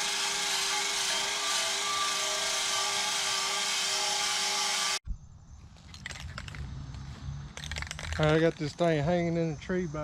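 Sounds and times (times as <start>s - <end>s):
electric drill motor whine: 0.0s - 5.0s.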